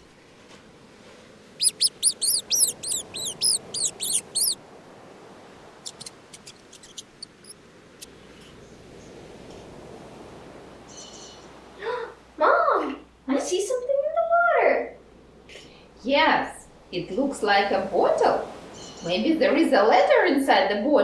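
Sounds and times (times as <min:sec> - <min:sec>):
dolphin squeaky whistles: 0:01.6 - 0:04.6.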